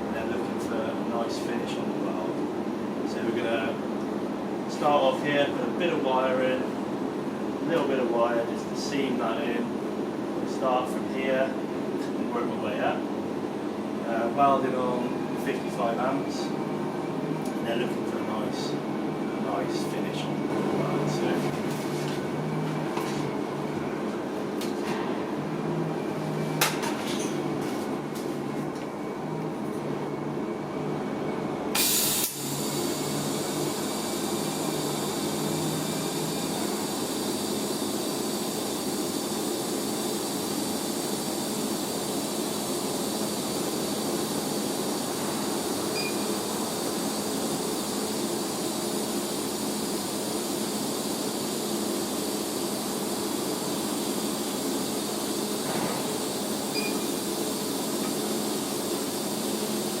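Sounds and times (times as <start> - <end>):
welding arc hissing: 31.8 - 60.0.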